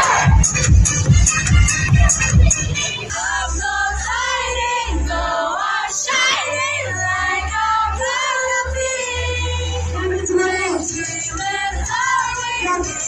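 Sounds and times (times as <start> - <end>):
pop song on karaoke machine: 0.0 - 13.0.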